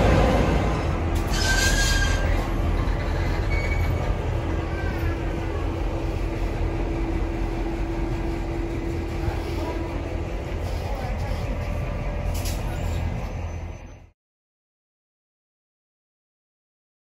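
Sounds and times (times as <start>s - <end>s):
train rumbling past: 0.0s - 14.2s
wheel squeals: 1.2s - 5.3s.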